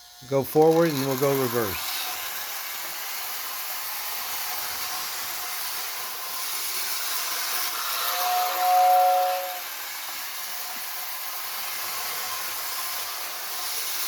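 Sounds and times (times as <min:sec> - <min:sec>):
toy train motor whirring hiss: 0:00.0 - 0:14.0
toy train whistle chord: 0:07.6 - 0:10.1.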